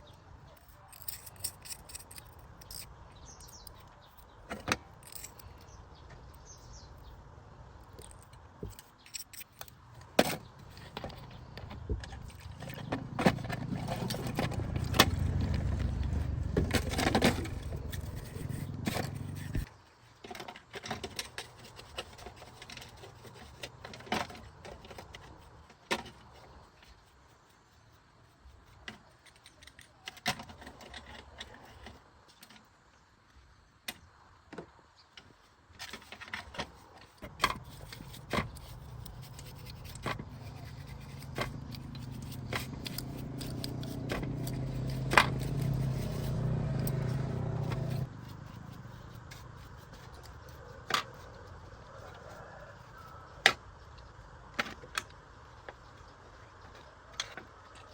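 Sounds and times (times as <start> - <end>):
metal tools clicking and scraping: 0.4 - 5.8, 7.8 - 19.7, 28.8 - 32.0, 35.9 - 51.3
low rumble: 12.5 - 19.7.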